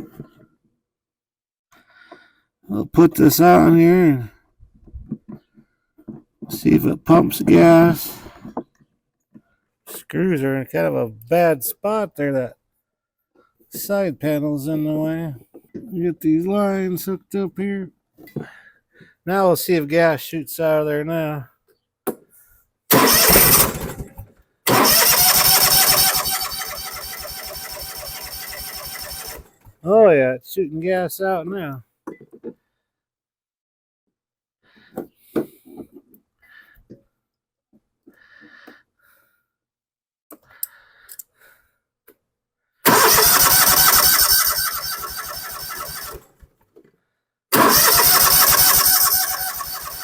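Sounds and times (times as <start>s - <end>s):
electric starter cranking engine: 22.9s - 29.7s, 42.9s - 46.4s, 47.5s - 50.0s.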